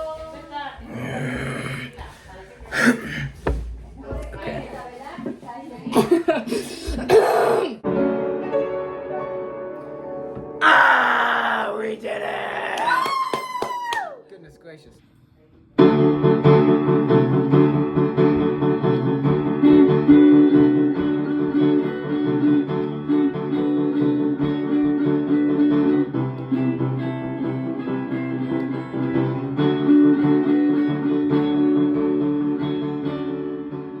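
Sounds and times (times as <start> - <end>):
guitar picked and strummed: 18.3 - 34.0.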